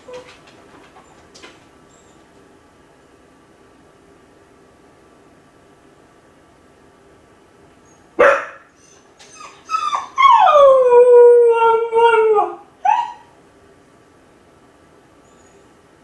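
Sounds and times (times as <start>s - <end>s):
dog yelping: 0.0s - 0.4s, 8.2s - 13.3s
dog yipping: 0.0s - 0.4s, 8.2s - 10.8s, 11.5s - 13.3s
dog barking: 8.2s - 8.7s
dog howling: 8.9s - 13.3s.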